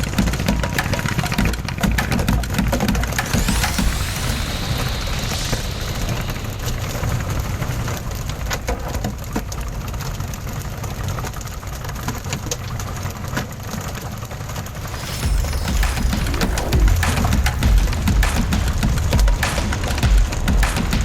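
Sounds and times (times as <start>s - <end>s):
water spattering: 3.2s - 11.0s, 14.4s - 21.0s.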